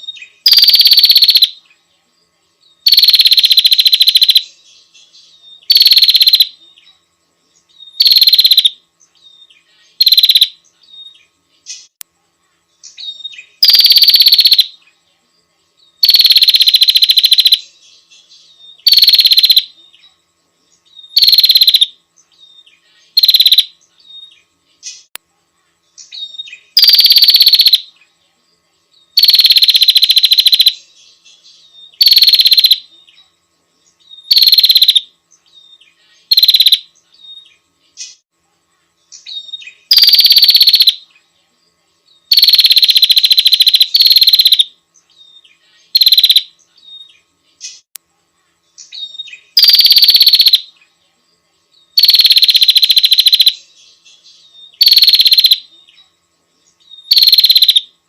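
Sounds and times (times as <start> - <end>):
prinia rattling call: 0.0 - 1.7, 2.8 - 6.9, 7.9 - 8.8, 9.6 - 12.0, 12.9 - 14.8, 16.0 - 19.8, 21.0 - 22.0, 22.6 - 25.1, 26.0 - 28.0, 29.2 - 32.9, 34.1 - 35.1, 35.8 - 38.2, 39.1 - 41.1, 42.3 - 47.9, 48.8 - 50.8, 52.0 - 56.0, 56.9 - 57.9.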